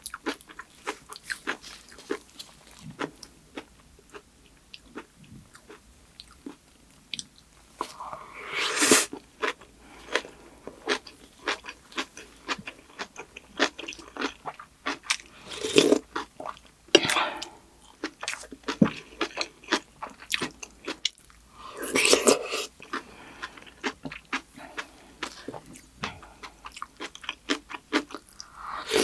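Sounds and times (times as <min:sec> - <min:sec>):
crunchy food chewing: 0:00.0 - 0:29.0.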